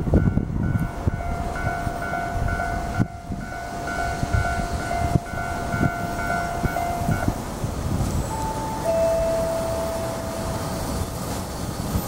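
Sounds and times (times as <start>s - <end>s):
electric train pulling in: 0.0s - 12.0s
train clunks: 0.0s - 12.0s
pulsing electronic warning tone: 8.3s - 11.2s.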